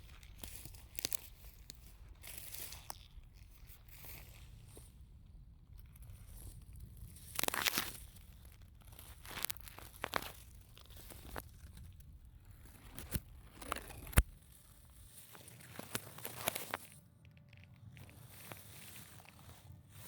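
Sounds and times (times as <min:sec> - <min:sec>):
twig snapping: 0:00.0 - 0:04.3, 0:07.1 - 0:12.1, 0:15.2 - 0:19.6
dry leaves and twigs crunching: 0:00.0 - 0:20.0.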